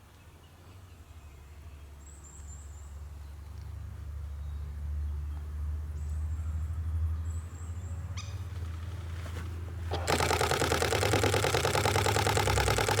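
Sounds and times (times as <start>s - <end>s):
camera shutter burst: 9.9s - 13.0s
rattle of shutter clicks: 9.9s - 13.0s.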